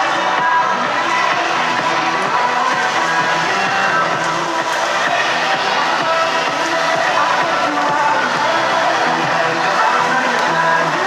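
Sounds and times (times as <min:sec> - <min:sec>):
background music with layered tones: 0:00.0 - 0:11.0.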